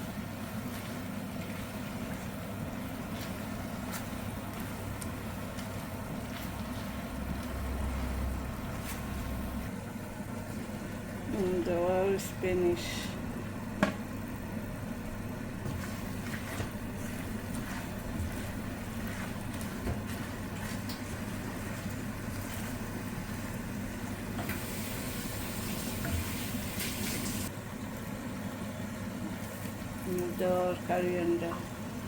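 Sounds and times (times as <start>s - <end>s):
kitchen appliance humming: 0.0s - 32.0s.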